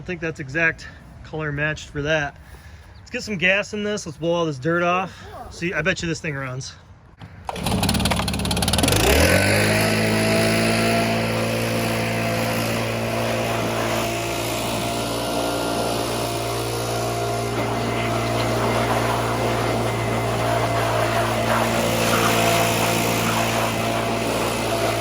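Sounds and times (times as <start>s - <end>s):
lawn mower engine running: 7.2s - 25.0s.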